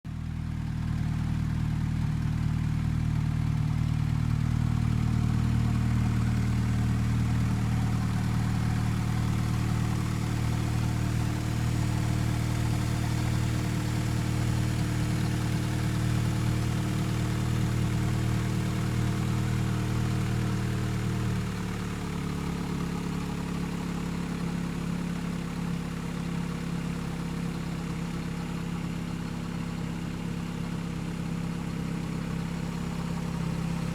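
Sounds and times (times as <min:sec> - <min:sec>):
car engine idling: 0:00.1 - 0:27.1.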